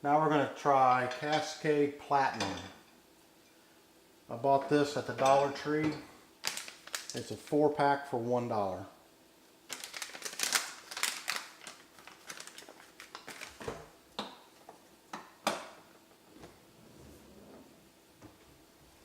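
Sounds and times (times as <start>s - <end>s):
packaging crinkling: 6.4s - 7.3s, 9.7s - 13.9s.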